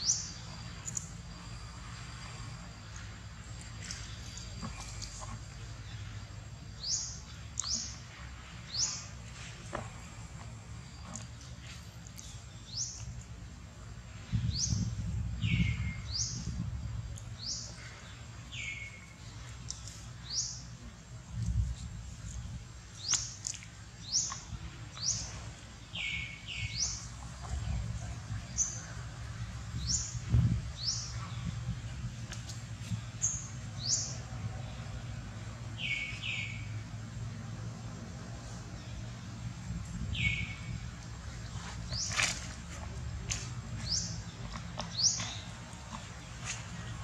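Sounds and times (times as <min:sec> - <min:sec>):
bird chirping: 0:00.0 - 0:03.1, 0:22.4 - 0:27.5, 0:35.8 - 0:36.8, 0:40.0 - 0:40.8
low rumbling noise: 0:00.0 - 0:47.0.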